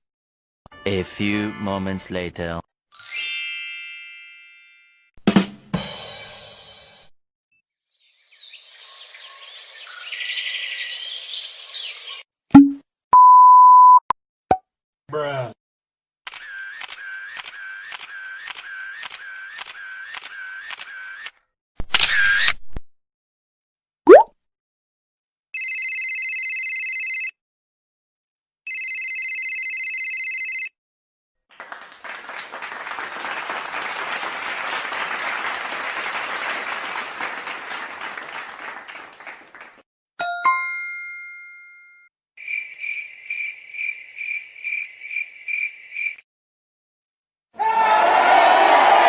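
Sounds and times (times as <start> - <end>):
bell ding: 3.0 - 5.0, 40.2 - 42.1
applause: 31.5 - 39.8
rapid bell ringing: 40.2 - 42.0.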